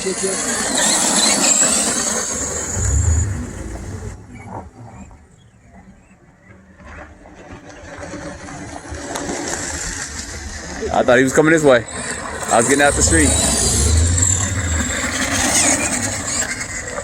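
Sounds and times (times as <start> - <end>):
low rumble: 2.6 - 4.9, 12.1 - 17.0
rc trucks motors whining: 11.8 - 17.0.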